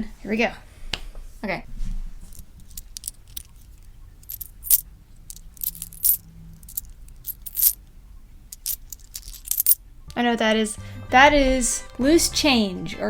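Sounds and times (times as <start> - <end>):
coins clinking: 2.3 - 7.9, 8.5 - 9.8.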